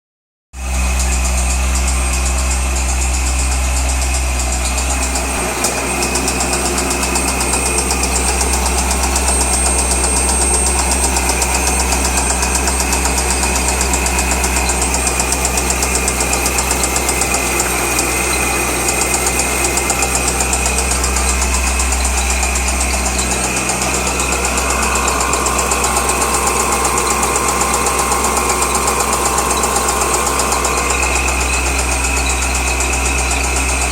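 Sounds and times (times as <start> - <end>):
car engine idling: 0.6 - 33.9
fast regular engine knocking: 0.6 - 33.9.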